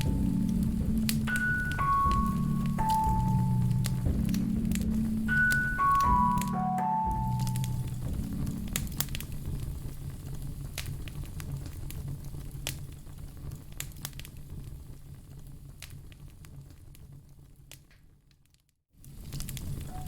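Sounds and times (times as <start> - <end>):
fire crackling and popping: 0.0 - 20.0
low rumble of flames: 0.0 - 20.0.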